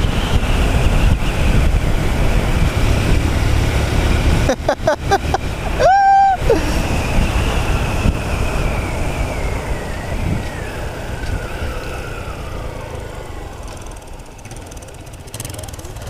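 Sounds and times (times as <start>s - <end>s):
wind rumble: 0.0s - 16.0s
motorcycle engine slowing down: 6.8s - 16.0s.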